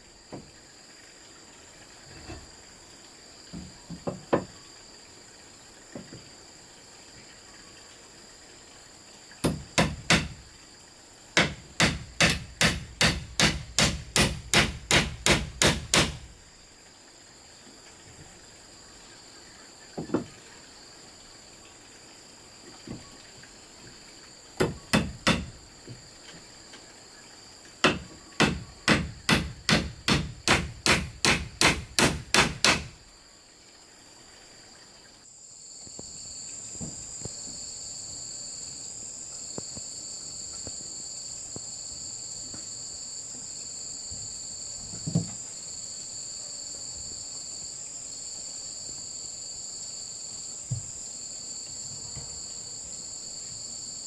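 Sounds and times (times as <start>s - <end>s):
insects chirring: 0.0s - 54.0s
tool striking bamboo: 9.4s - 10.5s, 11.4s - 16.3s, 24.6s - 25.6s, 27.8s - 33.0s.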